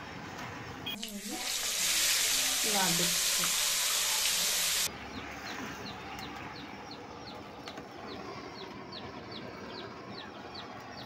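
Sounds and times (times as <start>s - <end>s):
deep-frying oil sizzling: 0.9s - 4.9s.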